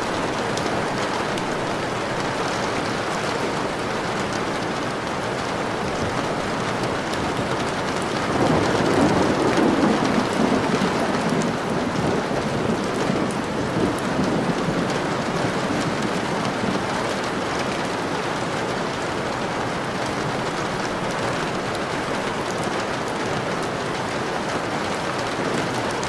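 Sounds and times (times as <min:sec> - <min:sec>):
steady rain falling: 0:00.0 - 0:26.0
low thunder roll: 0:08.3 - 0:16.9.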